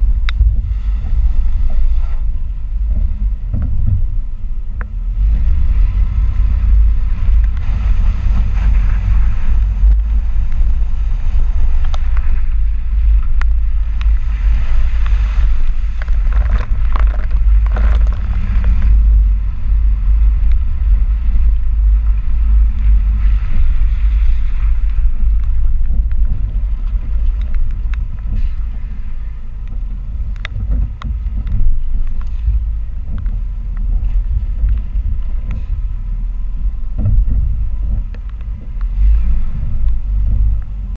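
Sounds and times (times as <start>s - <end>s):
truck road and wind rumble: 0.0s - 40.9s.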